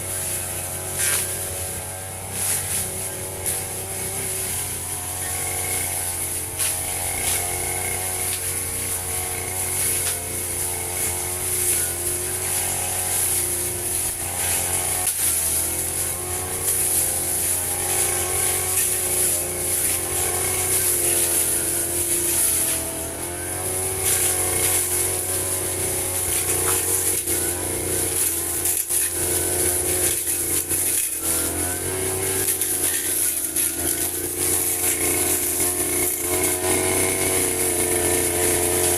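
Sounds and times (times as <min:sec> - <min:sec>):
brush cutter cutting grass: 0:00.0 - 0:38.9.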